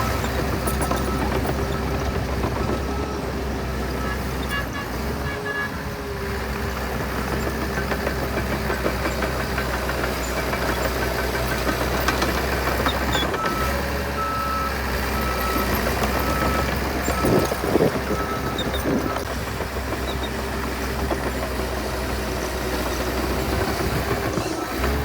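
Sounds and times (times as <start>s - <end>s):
heavy diesel machinery running: 0.0s - 25.0s
reversing alarm beeping: 12.9s - 19.2s.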